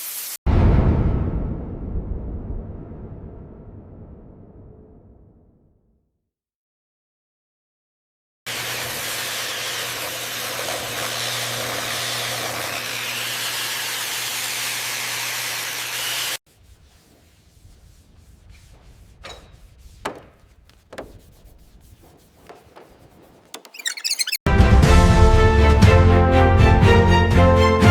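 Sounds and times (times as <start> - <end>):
abrasive rubbing: 16.5 - 24.5
faint short knocks: 19.2 - 21.5.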